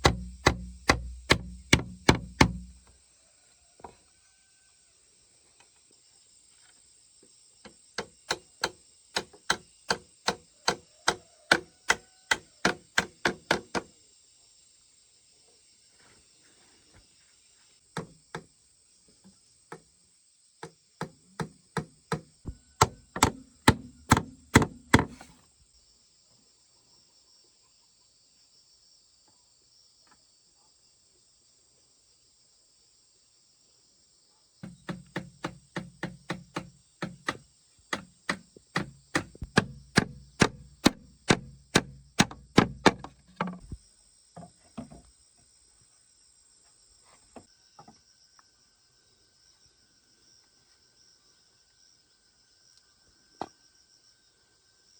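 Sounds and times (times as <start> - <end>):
tool striking wood: 0.0 - 2.9, 8.0 - 13.9, 21.0 - 25.3, 34.6 - 43.8.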